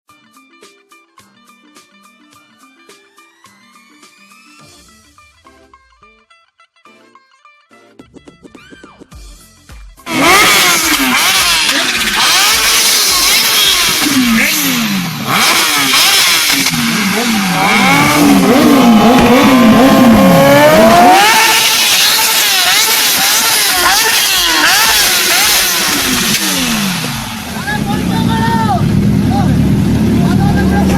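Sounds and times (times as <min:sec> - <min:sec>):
motorcycle engines revving: 0:10.1 - 0:30.9.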